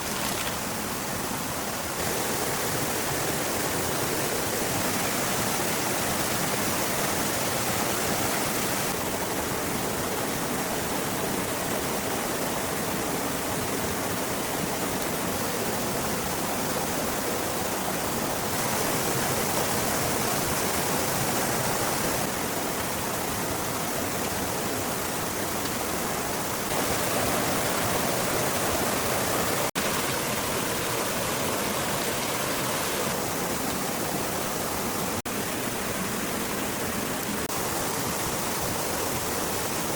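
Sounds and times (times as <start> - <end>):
steady rushing noise: 16.5 - 39.9.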